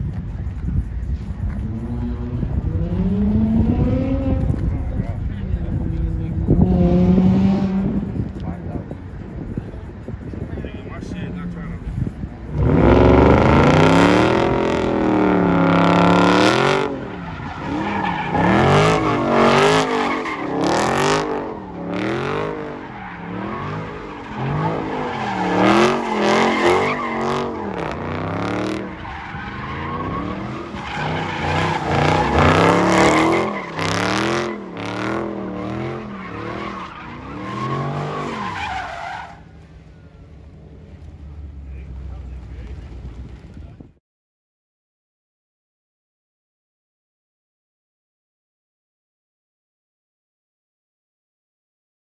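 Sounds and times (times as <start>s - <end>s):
car engine revving: 0.4s - 43.6s
tyres spinning and squealing: 5.8s - 43.9s.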